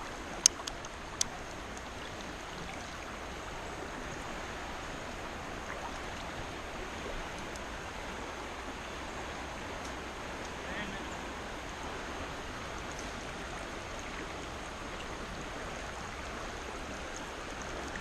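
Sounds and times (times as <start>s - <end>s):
creek current rushing: 0.0s - 18.0s
sharp clicks: 0.4s - 1.3s.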